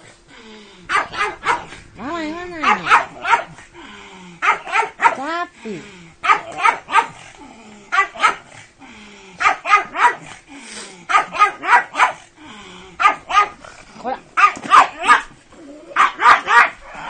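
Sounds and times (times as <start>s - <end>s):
dog barking sharply: 0.9s - 1.7s, 2.6s - 3.6s, 4.4s - 5.2s, 6.2s - 7.2s, 8.0s - 8.5s, 9.4s - 10.3s, 11.1s - 12.2s, 13.0s - 13.6s, 14.4s - 15.3s, 16.0s - 16.8s.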